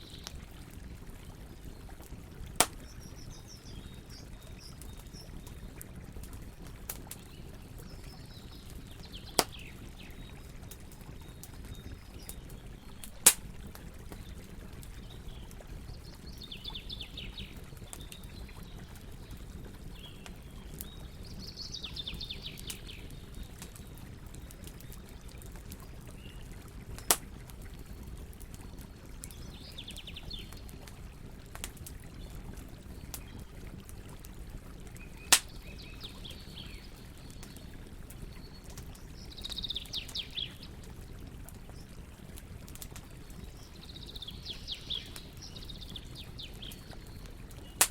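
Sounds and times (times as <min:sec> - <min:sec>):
campfire crackling: 0:00.0 - 0:47.9
campfire loud pops: 0:02.6 - 0:03.0, 0:09.3 - 0:09.8, 0:13.2 - 0:13.6, 0:27.0 - 0:27.3, 0:35.3 - 0:35.6.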